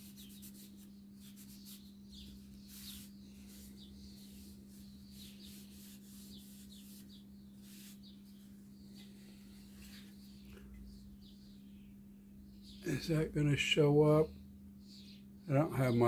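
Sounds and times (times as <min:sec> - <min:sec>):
hand wiping strokes with squeaks: 0:00.0 - 0:10.2
low electrical hum: 0:00.0 - 0:16.0.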